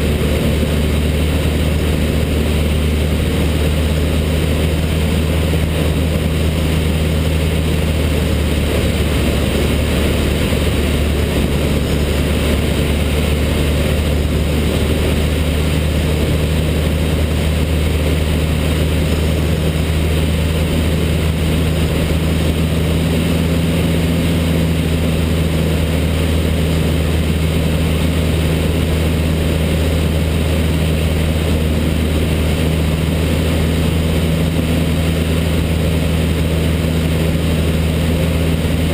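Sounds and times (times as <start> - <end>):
light aircraft engine drone: 0.0 - 38.9
rush of air: 0.0 - 38.9.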